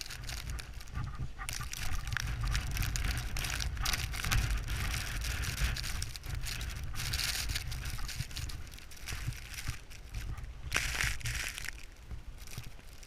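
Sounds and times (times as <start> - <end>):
blizzard wind buffeting microphone: 0.0 - 13.0.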